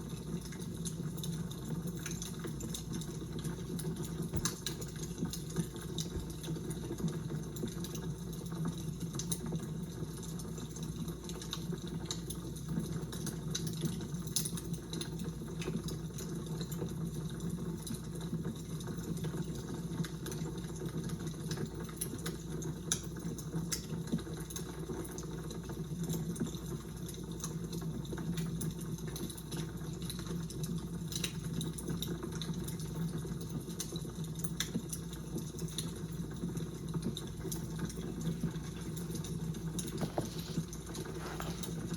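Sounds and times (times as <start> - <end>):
fire crackling and popping: 0.0 - 15.4, 26.4 - 41.9.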